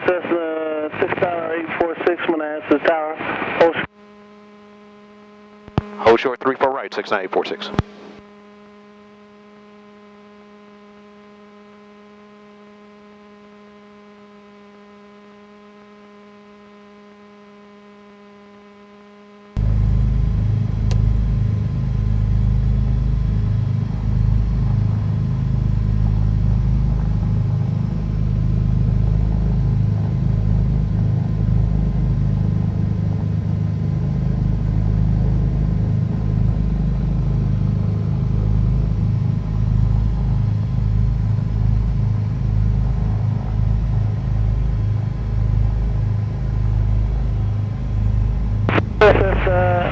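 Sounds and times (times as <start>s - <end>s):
airplane engines idling: 0.0s - 3.7s, 19.6s - 49.9s
faint electrical hum: 19.6s - 49.9s.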